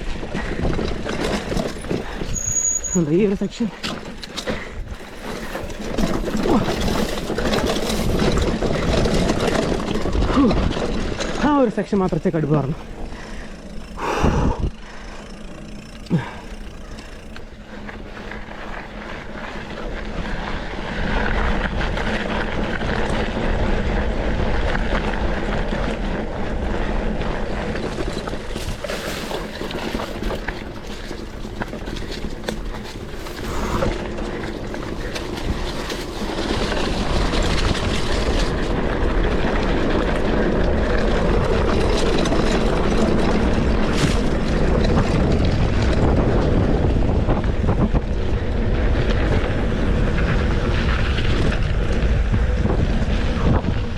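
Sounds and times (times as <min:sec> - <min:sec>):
bike tyres rushing over stones: 0:00.0 - 0:53.9.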